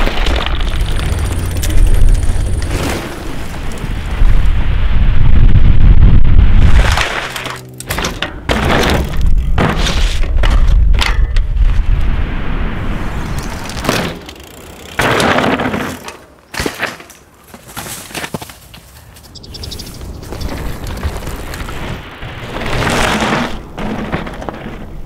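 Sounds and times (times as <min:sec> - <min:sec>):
bike knocking and rattling: 0:00.0 - 0:03.9, 0:06.7 - 0:11.8, 0:13.4 - 0:18.8, 0:20.1 - 0:25.0
bike tyres on rough trail: 0:00.0 - 0:25.0.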